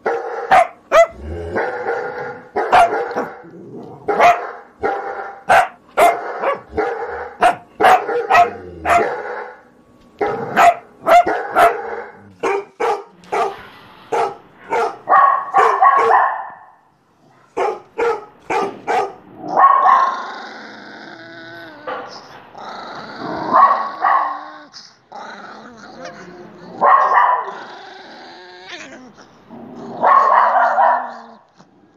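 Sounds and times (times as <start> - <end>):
dog barking: 0.0 - 3.4, 4.1 - 9.6, 10.2 - 16.8, 17.4 - 20.1, 23.5 - 24.4, 26.8 - 27.5, 30.0 - 31.4.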